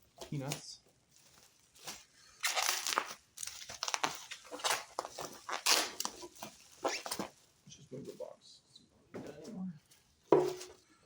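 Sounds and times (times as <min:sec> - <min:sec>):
foam packing peanuts rustling: 0:01.1 - 0:07.6.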